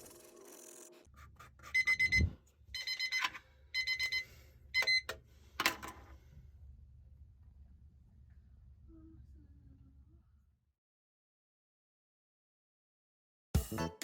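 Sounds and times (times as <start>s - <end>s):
timer alarm beeping: 1.8s - 5.1s.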